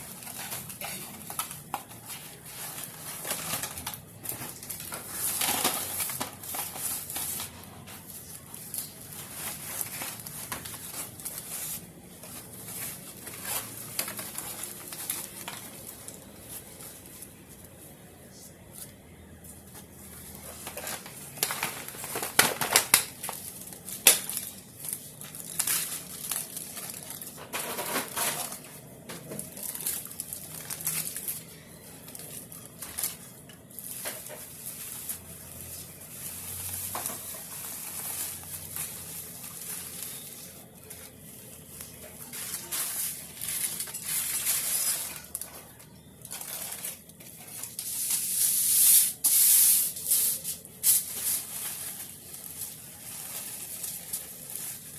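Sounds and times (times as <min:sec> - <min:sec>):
rustling and crinkling: 0:00.0 - 0:54.9.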